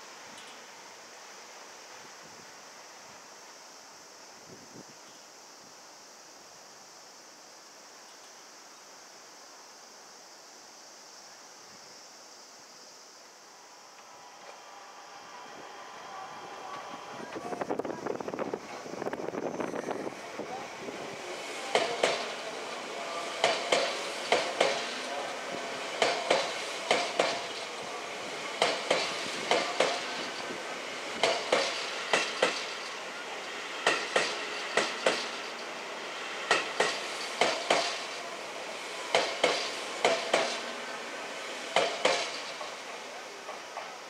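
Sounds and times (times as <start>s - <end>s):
train running hum: 0.0s - 44.0s
train wheels clicking over rail joints: 21.0s - 44.0s.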